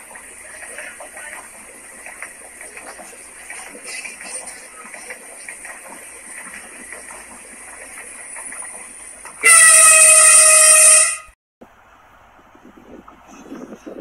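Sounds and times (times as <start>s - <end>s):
wheels clicking on rails: 0.0s - 11.2s
train rushing past: 0.0s - 11.4s
multi-tone train horn blast: 9.3s - 11.4s.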